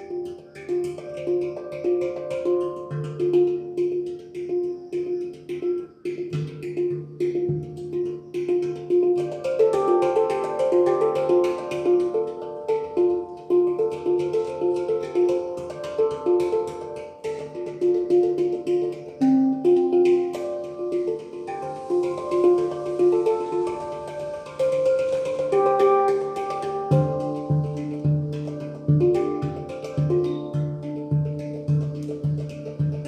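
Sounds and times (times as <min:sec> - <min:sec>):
handpan melody: 0:00.0 - 0:33.0
low handpan bass note ringing: 0:19.5 - 0:33.0.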